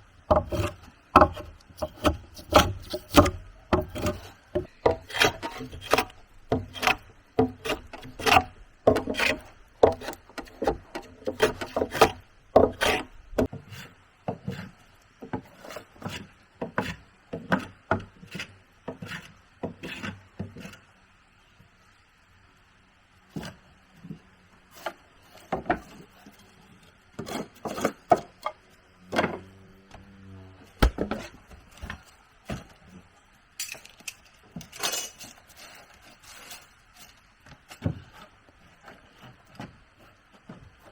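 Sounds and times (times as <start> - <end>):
hand tool rasping wood: 0.3 - 14.7.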